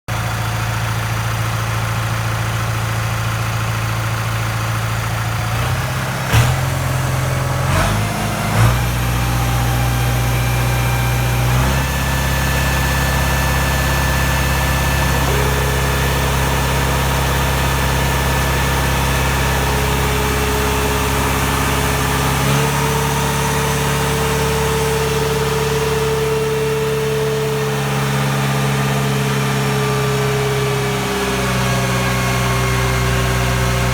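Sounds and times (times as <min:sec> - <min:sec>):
tractor diesel engine under load: 0:00.1 - 0:33.9.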